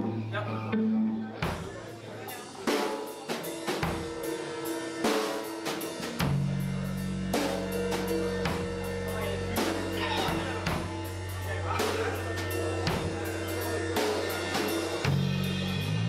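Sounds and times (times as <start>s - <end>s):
low bass notes: 0.0s - 1.4s, 6.2s - 16.0s
band playing: 0.0s - 16.0s.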